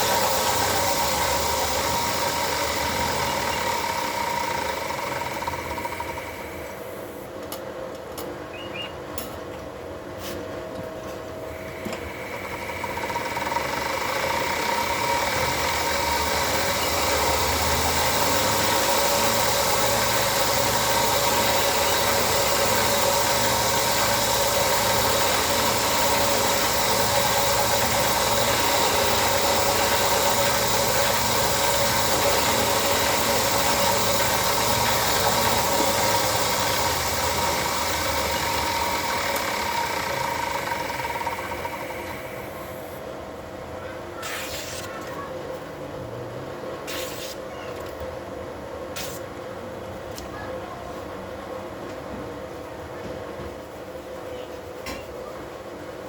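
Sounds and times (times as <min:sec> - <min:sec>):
sharpening grinder whining: 0:00.0 - 0:06.8, 0:11.6 - 0:42.9.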